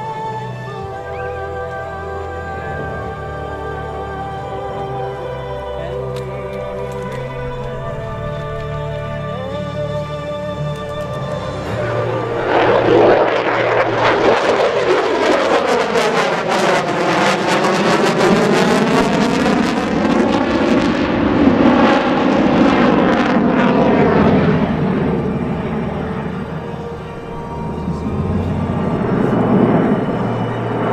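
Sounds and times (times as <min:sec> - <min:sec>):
fighter jet passing: 0:10.6 - 0:30.9.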